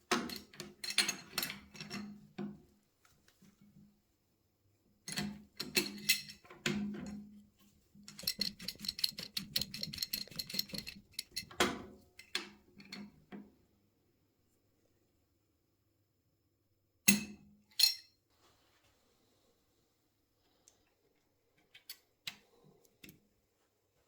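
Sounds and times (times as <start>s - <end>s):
rapid clicking: 8.1s - 11.5s
sharp knocks and clinks: 8.1s - 11.8s.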